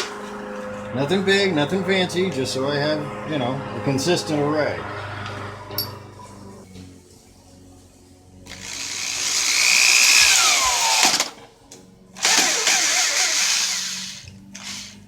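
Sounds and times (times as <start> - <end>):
electric drill motor whine: 8.5 - 11.4, 12.2 - 15.0.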